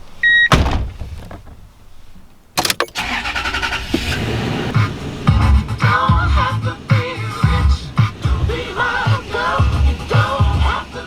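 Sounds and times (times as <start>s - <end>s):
car door shutting: 0.0s - 5.7s
car engine starting and running: 0.0s - 11.0s.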